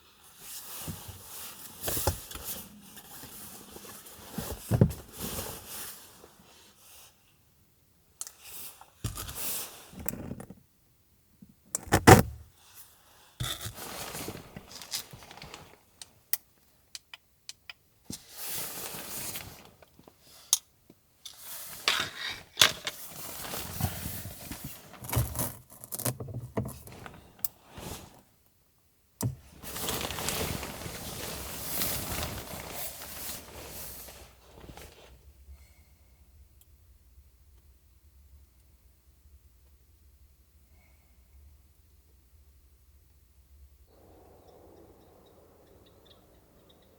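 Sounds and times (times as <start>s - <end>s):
rustling and scraping: 13.4s - 16.0s, 18.1s - 20.4s, 21.3s - 28.2s, 29.4s - 35.2s.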